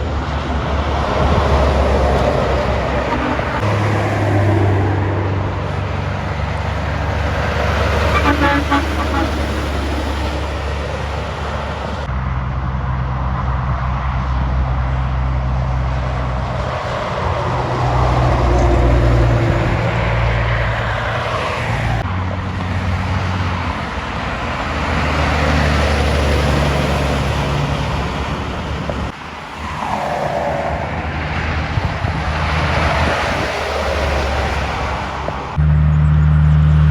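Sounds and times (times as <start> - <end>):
heavy trucks driving past: 0.0 - 36.9.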